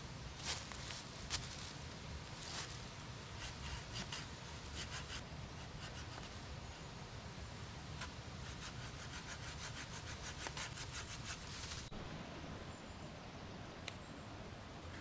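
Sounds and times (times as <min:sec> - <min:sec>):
rapid rhythmic sawing: 0:03.4 - 0:06.3, 0:08.4 - 0:11.5.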